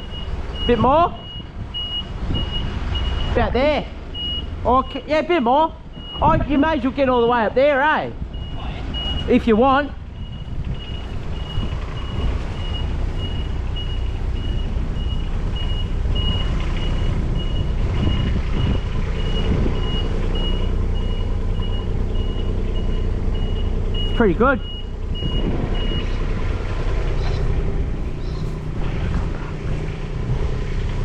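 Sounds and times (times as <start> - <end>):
reversing alarm beeping: 0.0 - 3.4, 4.1 - 5.0, 5.9 - 6.4, 8.3 - 26.3
diesel engine low rumble: 0.0 - 31.0.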